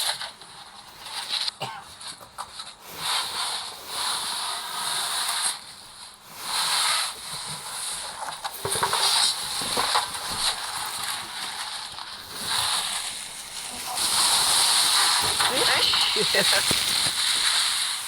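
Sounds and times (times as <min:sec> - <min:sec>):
hissy rustling bursts: 0:09.0 - 0:18.0.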